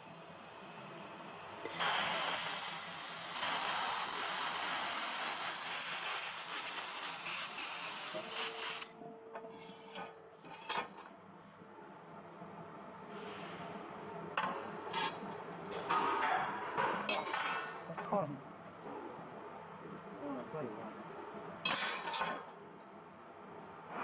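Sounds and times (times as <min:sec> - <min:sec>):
laser welder hissing and whining: 0:01.6 - 0:08.9.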